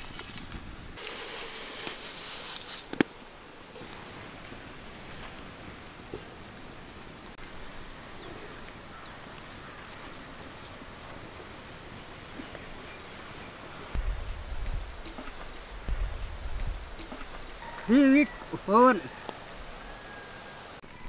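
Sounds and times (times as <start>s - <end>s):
outdoor background noise: 0.0s - 21.0s
bird chirping: 5.8s - 19.4s.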